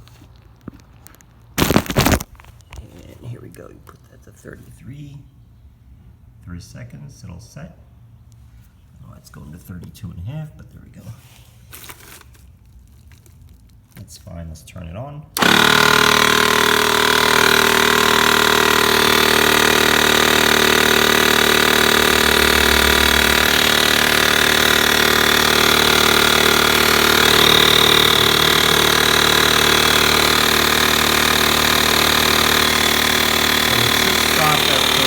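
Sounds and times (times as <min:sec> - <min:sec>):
tire compressor running: 0:15.4 - 0:35.0.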